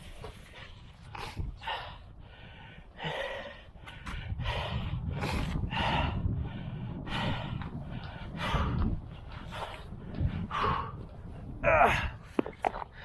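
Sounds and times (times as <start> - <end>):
man breathing hard: 0.0 - 13.0
low rumble: 1.5 - 13.0.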